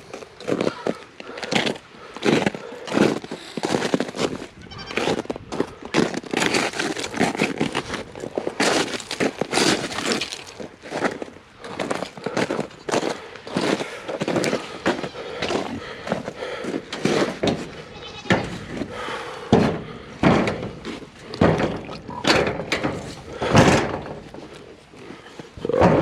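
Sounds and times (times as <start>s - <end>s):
footsteps crunching through snow: 0.0s - 19.2s
goats bleating: 4.6s - 5.2s, 14.4s - 16.2s, 17.4s - 19.1s.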